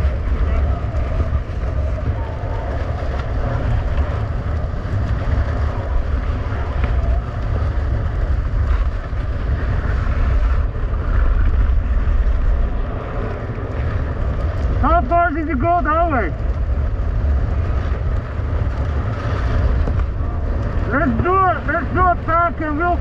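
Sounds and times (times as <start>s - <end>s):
blizzard wind buffeting microphone: 0.0s - 23.0s.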